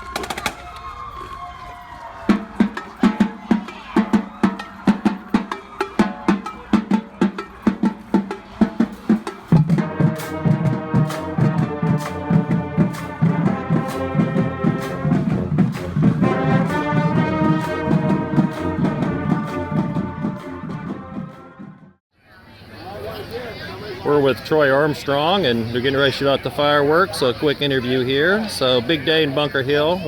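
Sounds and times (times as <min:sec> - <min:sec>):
marching drum cadence: 0:00.0 - 0:00.8, 0:02.2 - 0:22.0
brass section playing: 0:02.3 - 0:22.0.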